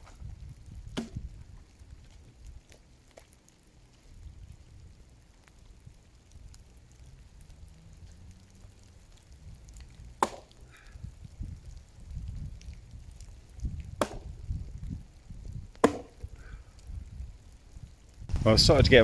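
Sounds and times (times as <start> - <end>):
axe striking wood: 0.9 - 1.2, 10.2 - 10.6, 14.0 - 14.3, 15.8 - 16.2
faint ticks: 1.4 - 14.0.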